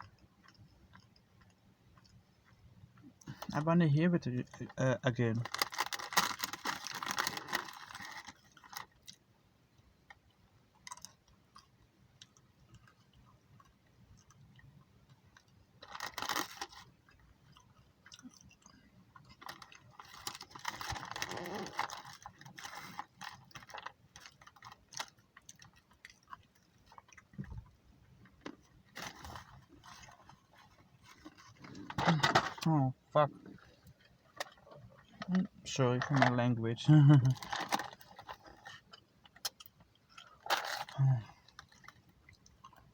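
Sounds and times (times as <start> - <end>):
chewing and crunching: 0.0 - 3.7, 4.3 - 36.3, 37.2 - 42.9.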